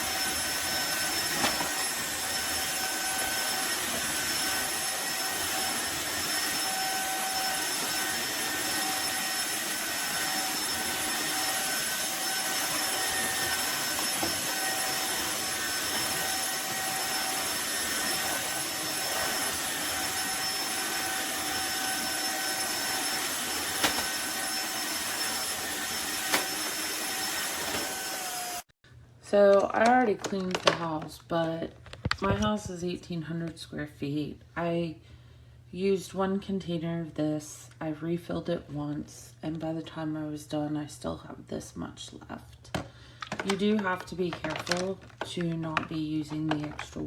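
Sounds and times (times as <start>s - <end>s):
vacuum mop motor whine: 0.0s - 28.7s, 42.8s - 47.0s.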